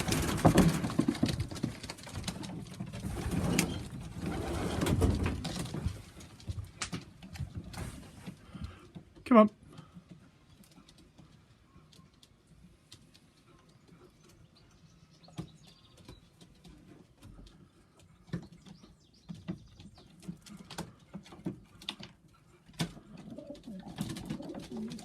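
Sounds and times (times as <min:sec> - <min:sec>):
pigeons cooing: 0:22.0 - 0:25.0.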